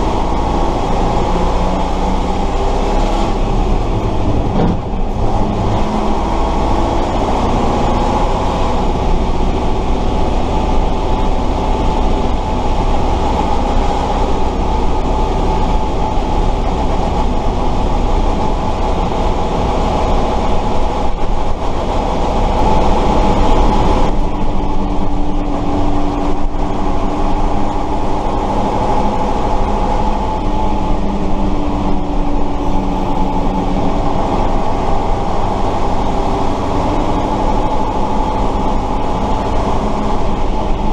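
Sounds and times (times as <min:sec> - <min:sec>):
truck engine droning: 0:00.0 - 0:40.9.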